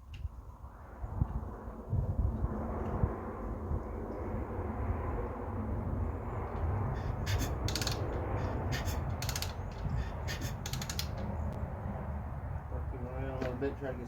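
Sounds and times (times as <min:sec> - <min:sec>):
rapid ratchet-like clicking: 0:07.0 - 0:11.2.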